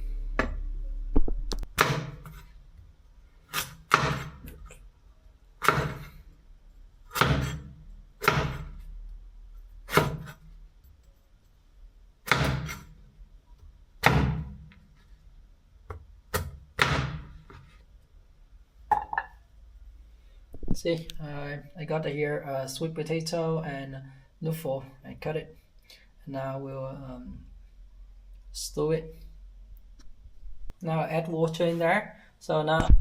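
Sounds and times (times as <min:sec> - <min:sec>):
knife chopping on cutting board: 0:01.8 - 0:02.4, 0:03.5 - 0:04.7, 0:05.6 - 0:06.2, 0:07.1 - 0:08.8, 0:09.9 - 0:10.4, 0:12.3 - 0:12.9, 0:14.0 - 0:14.7, 0:16.3 - 0:17.6.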